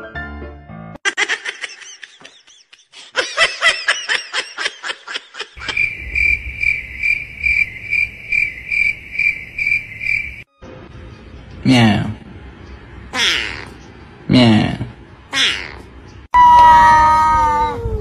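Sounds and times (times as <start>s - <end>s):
high-pitched giggling: 1.1s - 5.8s
cricket-like chirping: 5.6s - 10.5s.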